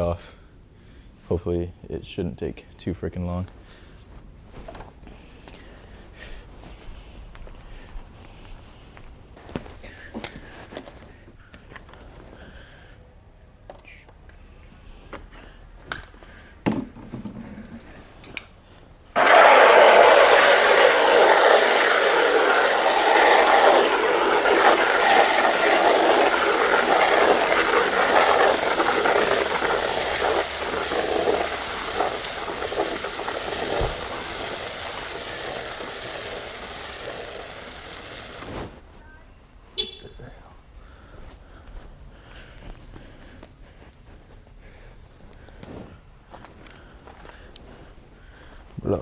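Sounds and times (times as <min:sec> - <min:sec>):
water spraying against car: 0:19.2 - 0:38.8.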